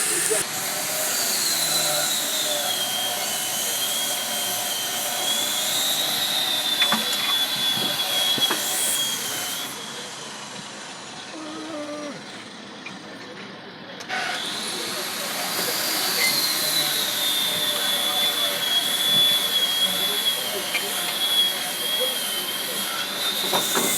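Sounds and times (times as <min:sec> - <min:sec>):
loud hiss: 0:00.0 - 0:06.2
power tool whining: 0:00.0 - 0:10.2.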